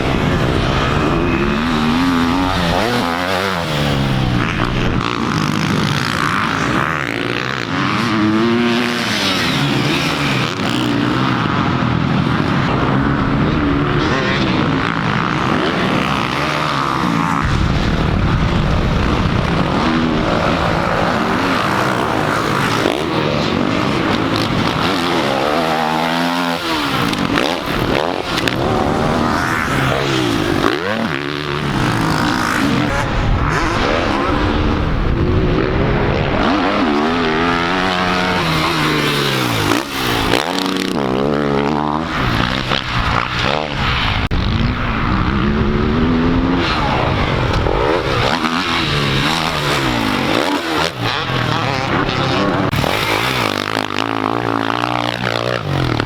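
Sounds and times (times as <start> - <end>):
dirt bike engine revving: 0.0 - 56.0
steady rushing noise: 0.0 - 56.0.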